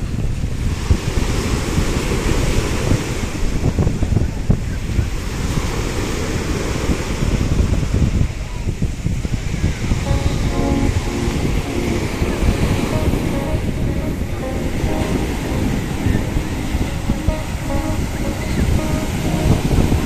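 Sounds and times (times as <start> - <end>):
wind buffeting microphone: 0.0 - 10.1
sea waves washing in: 10.0 - 20.0.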